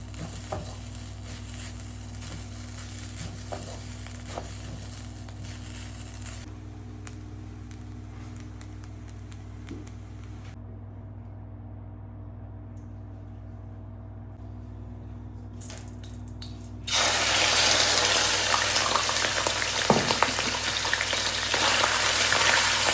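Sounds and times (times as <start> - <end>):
food sizzling in hot oil: 0.0 - 6.5, 16.9 - 22.9
low hum: 0.0 - 19.7.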